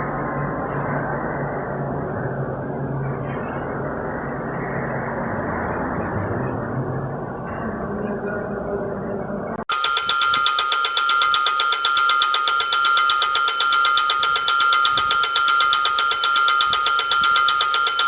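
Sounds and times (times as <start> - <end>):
railway warning bell ringing: 9.7 - 18.0.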